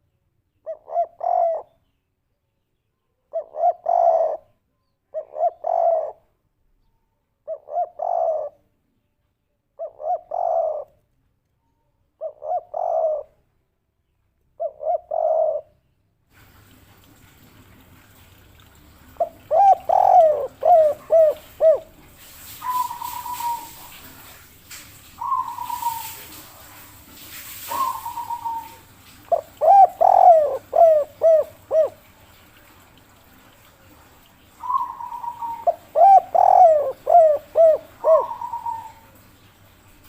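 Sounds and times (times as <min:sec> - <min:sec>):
dove cooing: 0:00.7 - 0:01.7, 0:03.3 - 0:06.2, 0:07.4 - 0:08.6, 0:09.8 - 0:11.0, 0:12.2 - 0:13.4, 0:14.6 - 0:15.8, 0:18.6 - 0:24.4, 0:25.1 - 0:26.9, 0:27.5 - 0:32.4, 0:34.5 - 0:39.5
hiss: 0:21.1 - 0:29.4.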